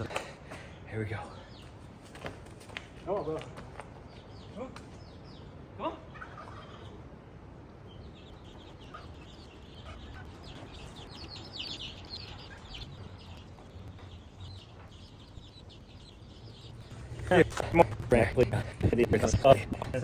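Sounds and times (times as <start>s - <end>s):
chickens clucking: 5.6s - 20.0s.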